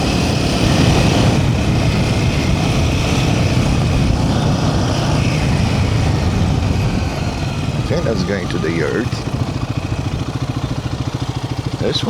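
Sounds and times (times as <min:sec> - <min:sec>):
motorcycle engine running: 0:00.0 - 0:12.0
steady rushing noise: 0:00.0 - 0:12.0.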